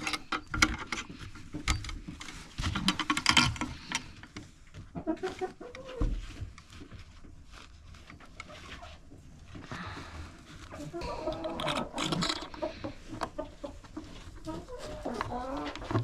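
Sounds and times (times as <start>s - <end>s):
chickens clucking: 4.8s - 6.2s, 10.7s - 16.0s.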